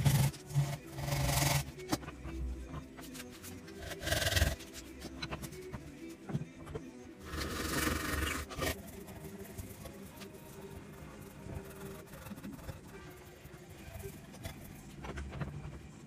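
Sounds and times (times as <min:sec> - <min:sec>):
hand tool scraping on wood: 0:00.0 - 0:02.1.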